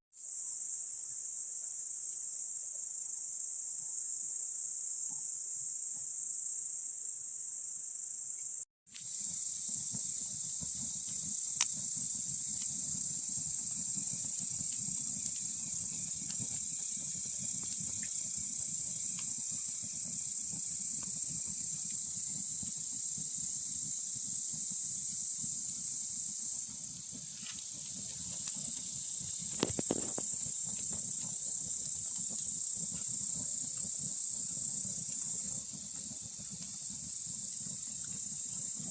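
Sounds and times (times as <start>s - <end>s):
crickets chirring: 0.2s - 38.9s
campfire crackling: 9.0s - 38.9s
fire pops: 9.0s - 38.9s.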